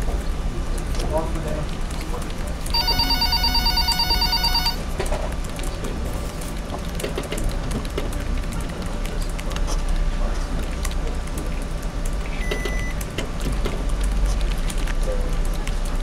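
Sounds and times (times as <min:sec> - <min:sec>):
telephone ringing electronically: 0:02.7 - 0:04.9.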